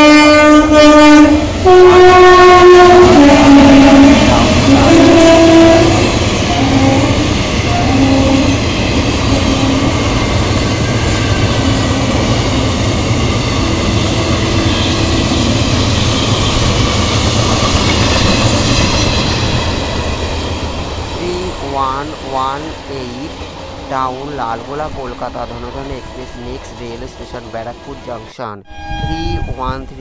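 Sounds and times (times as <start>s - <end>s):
train horn: 0.0s - 10.2s, 11.0s - 12.5s, 27.6s - 30.0s
wheels rumbling on rail: 0.0s - 28.1s.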